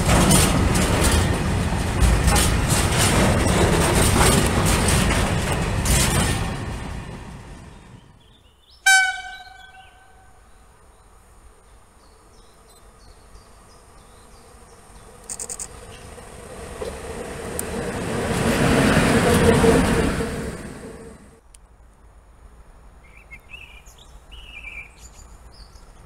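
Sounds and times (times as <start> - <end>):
locomotive rumble: 0.0 - 10.3, 13.2 - 21.4
locomotive horn blast: 8.8 - 10.4.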